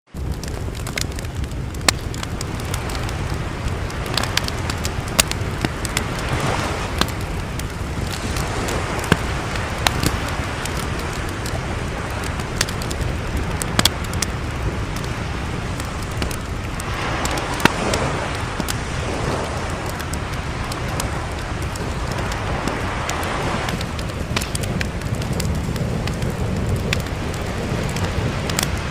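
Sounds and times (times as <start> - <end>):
fire crackling and popping: 0.1 - 28.9
sea waves washing in: 0.1 - 28.9.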